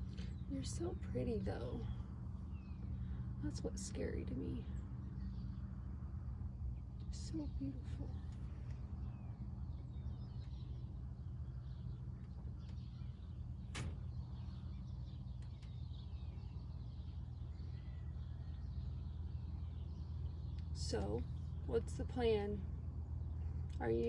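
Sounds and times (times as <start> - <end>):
steady low hum: 0.0 - 24.0
faint bird chirps: 6.8 - 21.7.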